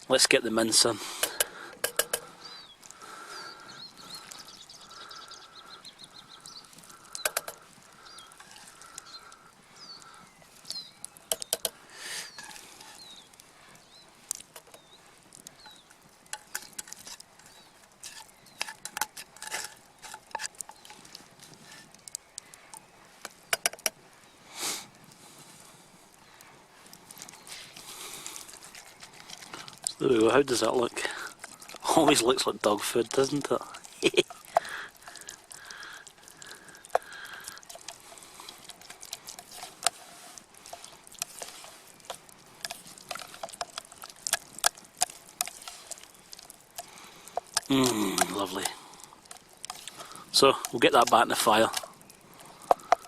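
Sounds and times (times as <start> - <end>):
metal spoon scraping pots: 0.8 - 2.3, 11.3 - 13.1, 15.7 - 22.0, 28.4 - 51.9.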